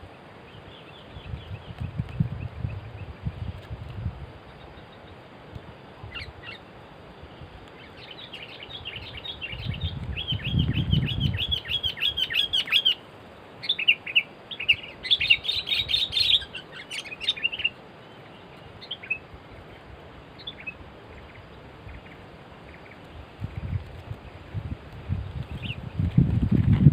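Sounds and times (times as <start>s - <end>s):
birds chirping rapid notes: 7.8s - 13.0s, 13.6s - 19.8s.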